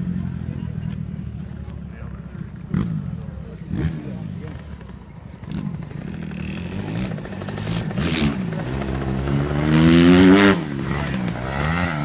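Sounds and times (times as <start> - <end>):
dirt bike engine revving: 2.6 - 12.0.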